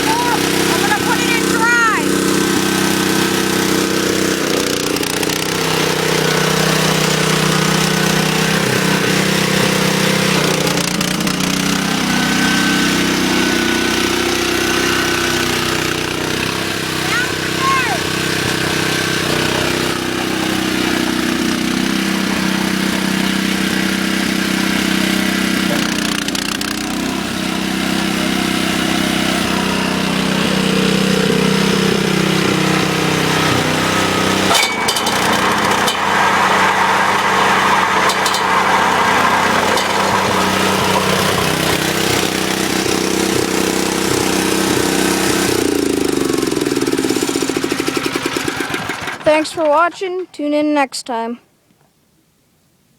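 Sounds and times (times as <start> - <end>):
snowblower engine running: 0.0 - 51.3.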